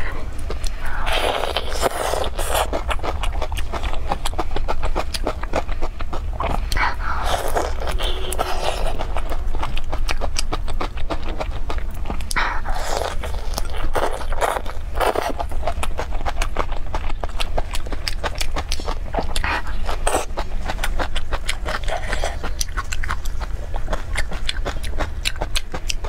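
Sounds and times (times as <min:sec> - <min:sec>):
slurping: 0:00.0 - 0:03.7, 0:06.4 - 0:09.3
wet chewing mouth sounds: 0:00.0 - 0:26.0.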